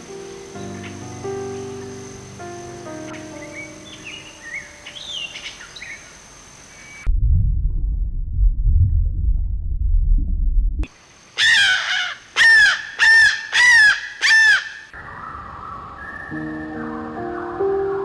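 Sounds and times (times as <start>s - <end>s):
soft music: 0.0s - 5.9s, 16.0s - 18.0s
bird calling: 3.1s - 7.1s, 11.4s - 18.0s
low rumble: 7.0s - 10.9s.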